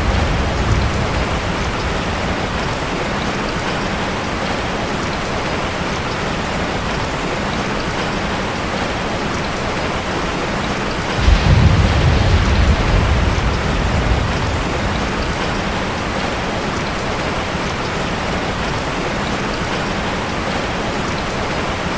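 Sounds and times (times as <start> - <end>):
low roll of thunder: 0.0 - 3.8, 11.2 - 17.6
heavy rain falling: 0.0 - 21.9.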